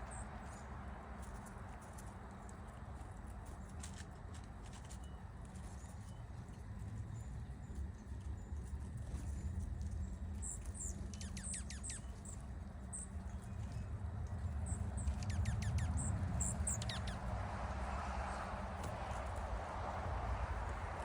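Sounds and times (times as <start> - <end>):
steady low rumble: 6.0 - 21.0
small birds chirping: 9.9 - 17.4.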